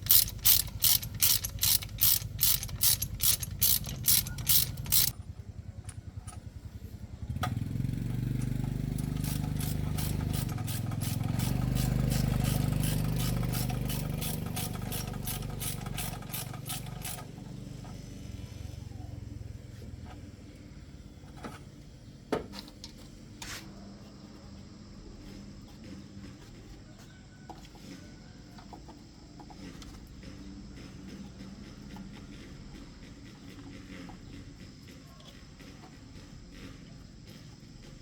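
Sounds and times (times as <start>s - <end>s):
tools clicking and knocking: 0.0s - 6.5s, 8.4s - 17.4s
engine running with ticking: 0.0s - 21.4s, 28.4s - 38.0s.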